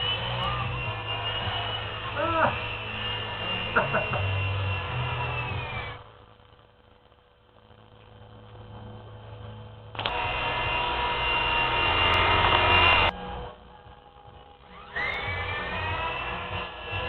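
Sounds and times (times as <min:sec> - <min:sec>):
helicopter motor and rotor whining: 0:00.0 - 0:06.0, 0:09.9 - 0:13.1.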